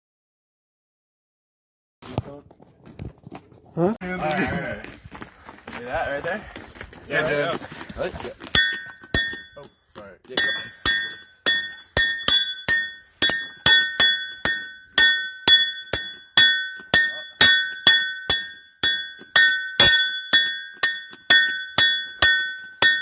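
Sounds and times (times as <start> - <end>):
hammer striking metal on anvil: 8.5 - 9.7, 10.4 - 23.0.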